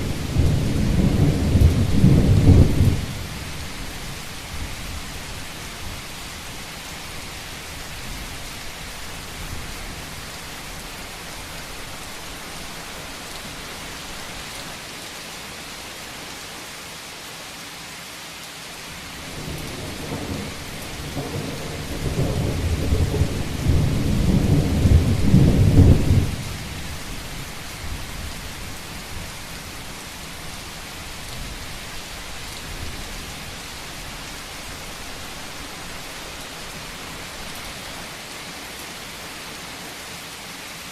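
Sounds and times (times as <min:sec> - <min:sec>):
thunder rumbling: 0:00.0 - 0:04.7, 0:19.3 - 0:26.9
heavy rain on a roof: 0:00.0 - 0:40.9.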